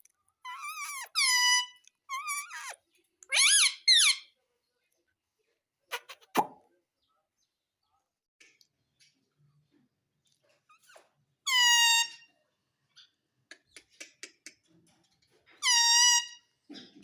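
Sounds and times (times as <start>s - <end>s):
parrot calling loudly: 0.4s - 4.3s.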